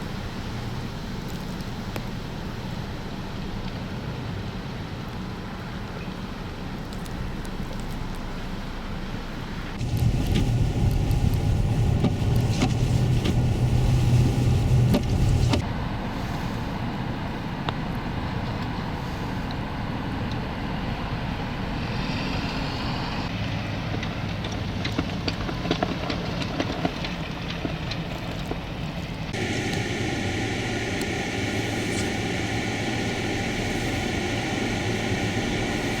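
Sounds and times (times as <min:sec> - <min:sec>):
wind rumbling on microphone: 0:09.7 - 0:16.0, 0:24.6 - 0:36.0
storm surf: 0:09.8 - 0:15.6, 0:29.3 - 0:36.0.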